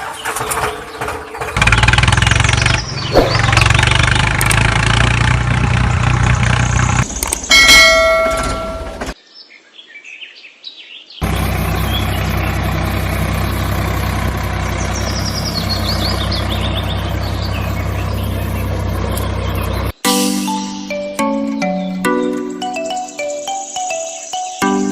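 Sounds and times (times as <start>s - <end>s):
birds chirping: 0.0s - 5.0s, 6.4s - 20.0s, 21.0s - 24.9s
tractor engine idling: 0.0s - 9.2s, 11.2s - 20.0s.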